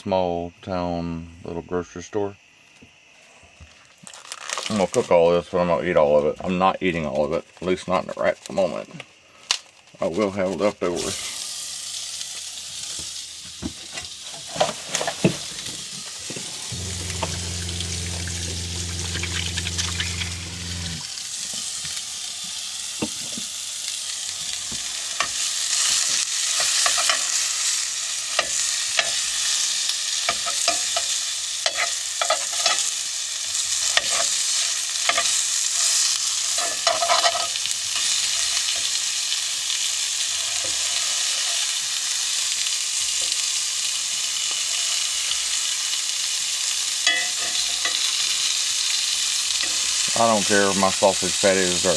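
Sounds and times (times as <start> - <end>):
sausage sizzling in a skillet: 9.8 - 51.9
low steady hum: 16.3 - 21.0
utensil scraping a pan: 16.3 - 21.0.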